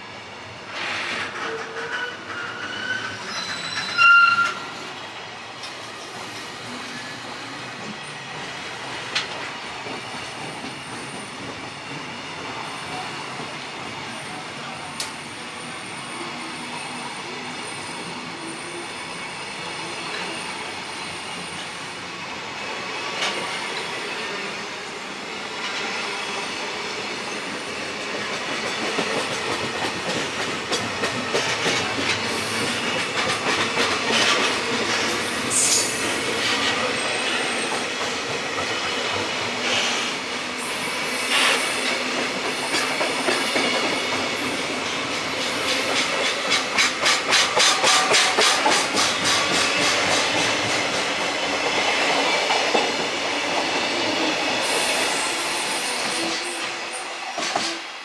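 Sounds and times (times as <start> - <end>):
train wagons rumbling: 0.8 - 4.7, 28.0 - 40.6, 41.3 - 55.4
high wheel squeals: 1.4 - 4.8.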